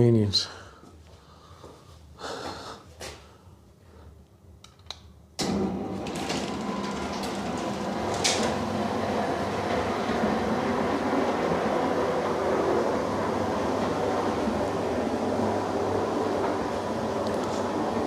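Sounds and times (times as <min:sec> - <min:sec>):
garage door motor rumbling: 0:05.4 - 0:18.0.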